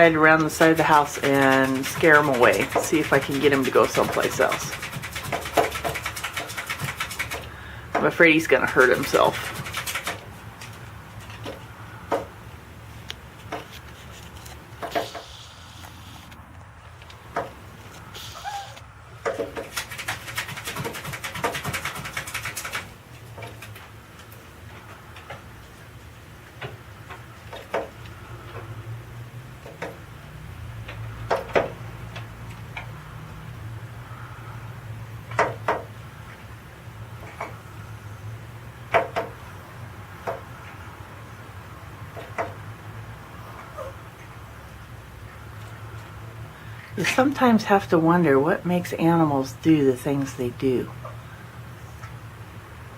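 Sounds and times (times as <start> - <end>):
bird tapping on window glass: 0.4 - 8.2, 8.8 - 12.4, 19.2 - 23.8, 30.8 - 33.0, 35.2 - 36.0, 38.9 - 39.4, 40.2 - 40.8.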